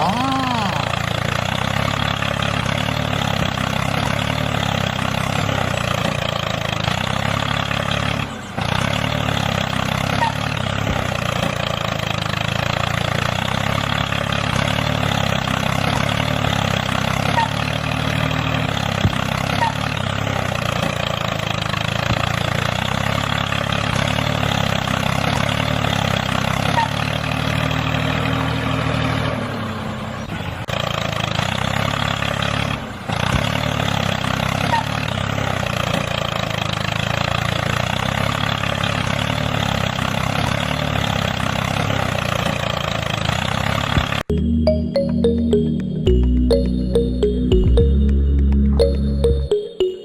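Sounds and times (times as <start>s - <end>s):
engine droning: 0.0s - 30.1s.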